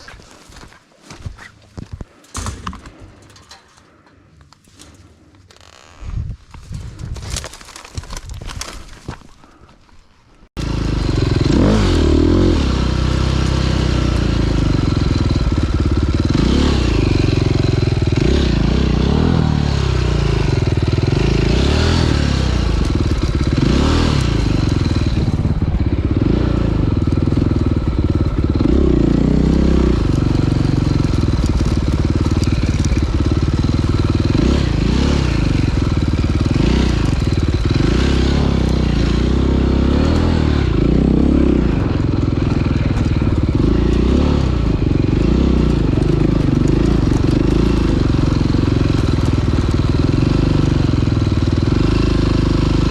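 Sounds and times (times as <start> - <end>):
dirt bike engine revving: 10.6 - 52.9.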